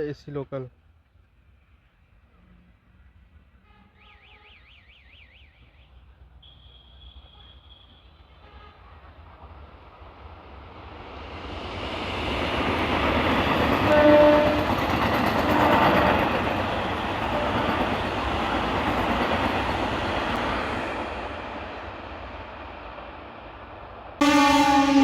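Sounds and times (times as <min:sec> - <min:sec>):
train horn: 0:03.5 - 0:04.6, 0:06.4 - 0:09.0, 0:13.8 - 0:14.8, 0:17.3 - 0:17.8, 0:24.2 - 0:25.0
electric train running past: 0:05.9 - 0:25.0.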